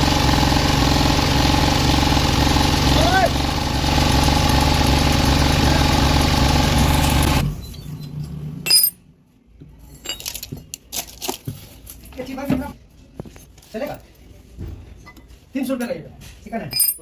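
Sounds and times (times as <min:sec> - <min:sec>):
motor running: 0:00.0 - 0:07.5.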